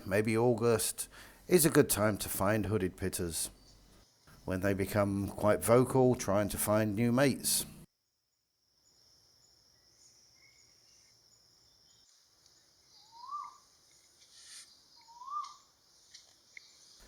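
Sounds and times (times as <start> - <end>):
bird whistled calls: 13.0 - 13.6, 14.4 - 15.7.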